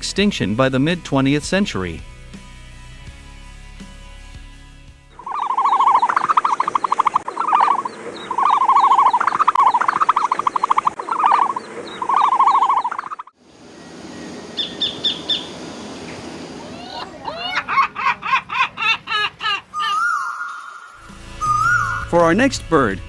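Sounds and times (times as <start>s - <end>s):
bird trilling rapidly: 5.2s - 13.3s, 14.5s - 15.6s, 19.7s - 22.1s
high bird chirps: 5.2s - 13.3s, 14.6s - 15.6s, 19.8s - 22.1s.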